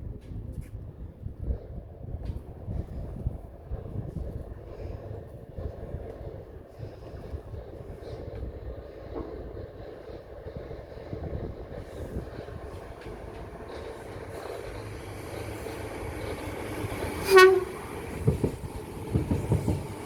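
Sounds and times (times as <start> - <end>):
train rumble: 0.0 - 20.0
train wheel noise: 0.2 - 20.0
train horn blast: 15.1 - 18.4.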